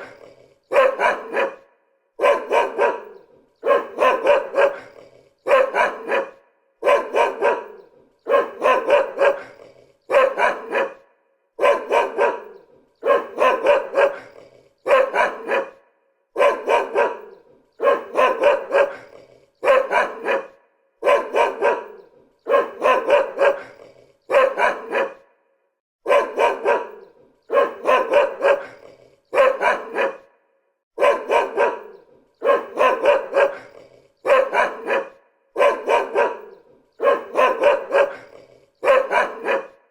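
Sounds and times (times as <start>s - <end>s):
dog barking: 0.0s - 39.9s.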